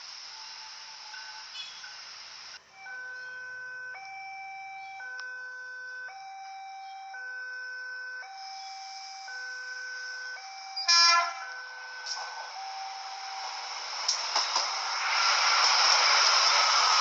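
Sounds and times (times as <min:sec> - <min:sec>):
two-tone electronic warning signal: 0:00.3 - 0:14.0.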